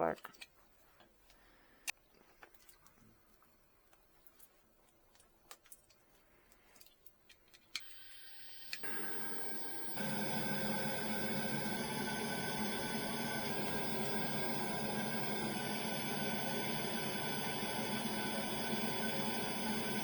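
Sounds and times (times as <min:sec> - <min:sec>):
electric fan motor humming: 0:07.8 - 0:20.0.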